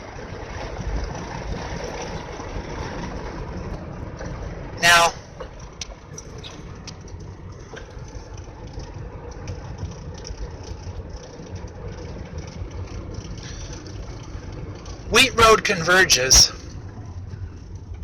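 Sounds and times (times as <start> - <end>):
car engine and road rumble: 0.0 - 18.0
faint ticks and rattles: 5.4 - 15.1.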